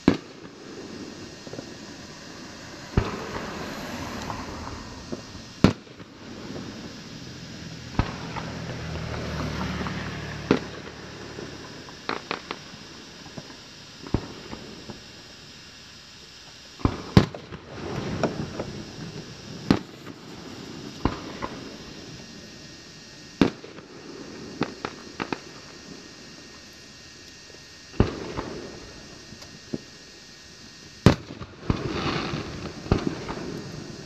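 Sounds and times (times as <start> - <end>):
fireworks bangs: 0.0 - 15.1, 16.8 - 22.3, 23.4 - 26.0, 31.0 - 34.0
low hum: 0.3 - 11.9.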